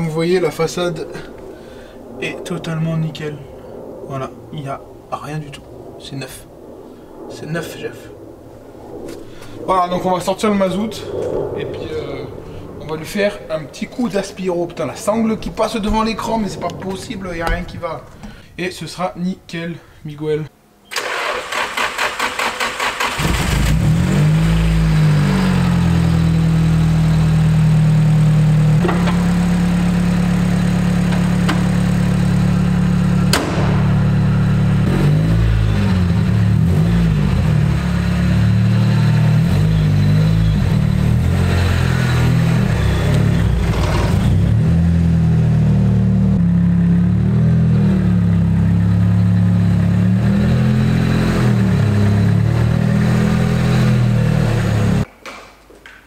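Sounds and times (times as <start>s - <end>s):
car engine idling and revving: 22.7s - 55.1s
sharp knock: 33.3s - 34.1s.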